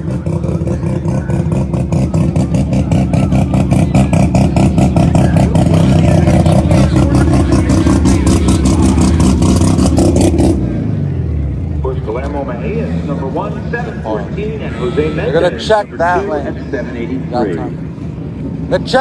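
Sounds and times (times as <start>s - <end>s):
race car engine idling: 0.0s - 19.0s.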